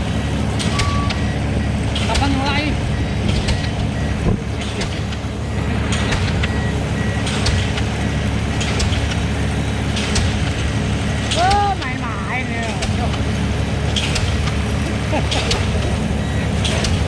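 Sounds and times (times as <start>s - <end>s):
diesel engine drone: 0.0s - 17.0s
pile hammer striking a pile: 11.3s - 16.0s.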